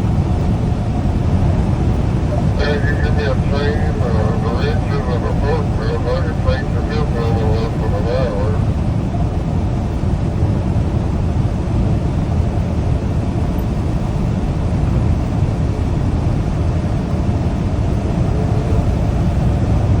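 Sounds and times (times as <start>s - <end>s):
road noise: 0.3s - 20.0s
truck engine drone: 0.4s - 9.8s.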